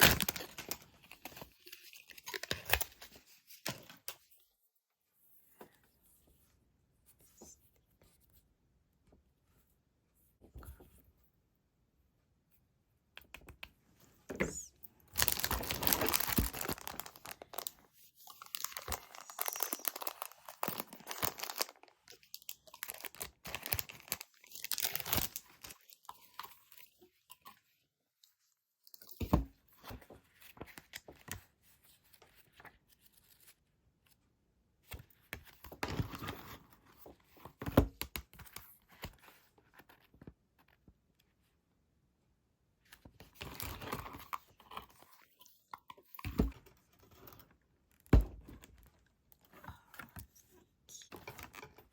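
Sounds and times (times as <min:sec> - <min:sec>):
packaging tearing and crinkling: 0:00.0 - 0:03.0, 0:15.2 - 0:25.8.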